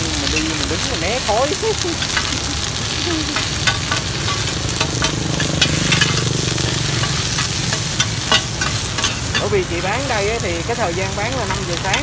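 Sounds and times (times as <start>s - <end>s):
cake frying in oil: 0.0s - 12.0s
metal spatula scraping pan: 3.4s - 10.6s.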